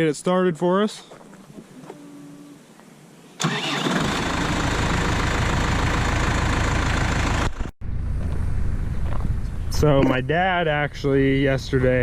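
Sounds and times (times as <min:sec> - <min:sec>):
diesel tractor engine starting: 0:03.4 - 0:08.9.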